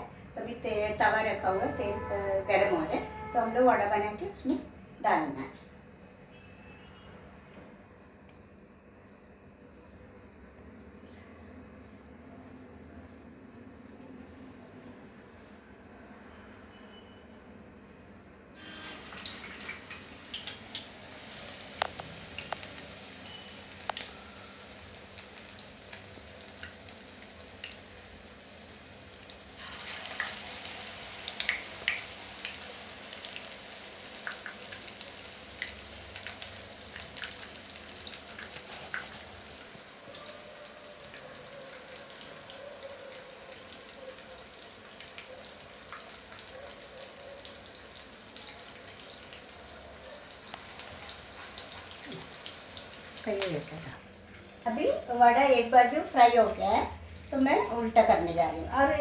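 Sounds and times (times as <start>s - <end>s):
frying oil sizzling and popping: 18.6s - 59.0s.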